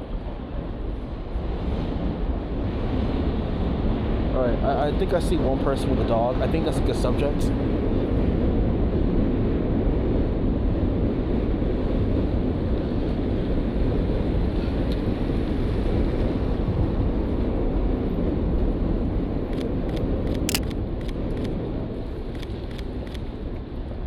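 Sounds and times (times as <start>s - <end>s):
camera shutter clicks: 20.4s - 21.2s.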